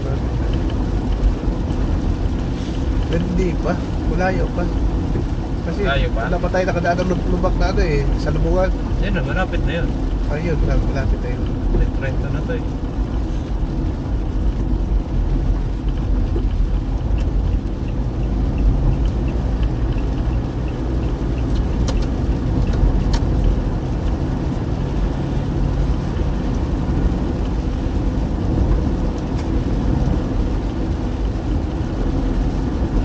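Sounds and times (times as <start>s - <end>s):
car engine and road noise: 0.0s - 33.0s
light ticks: 0.3s - 2.0s, 15.3s - 24.4s, 25.7s - 31.7s.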